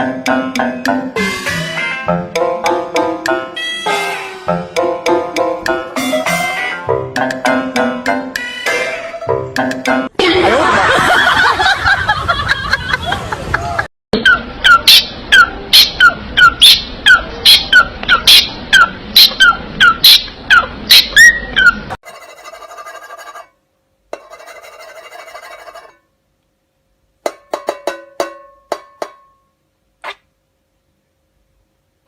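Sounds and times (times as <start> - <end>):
parrot squawking: 8.4 - 9.3, 14.2 - 22.0.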